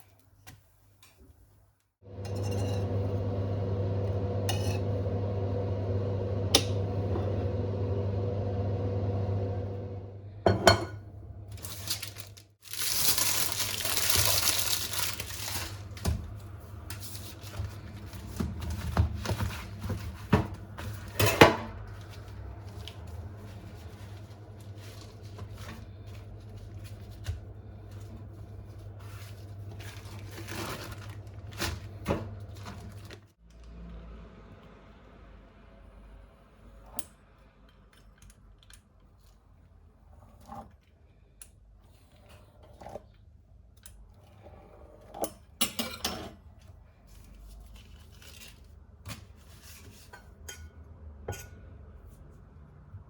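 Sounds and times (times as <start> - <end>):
steady low hum: 2.1 - 12.4.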